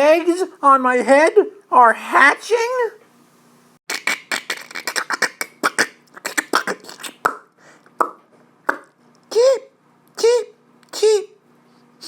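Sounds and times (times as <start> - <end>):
mouth clicks and pops: 3.9 - 9.3.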